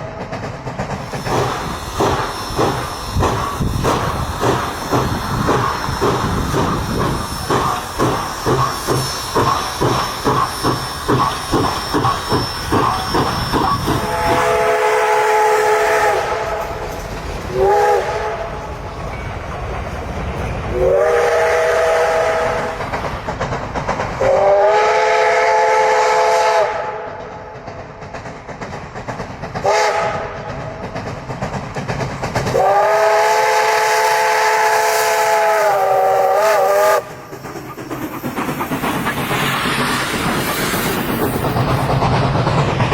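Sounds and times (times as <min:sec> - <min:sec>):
steam hiss: 0:00.0 - 0:42.9
steam locomotive chuffing: 0:00.0 - 0:42.9.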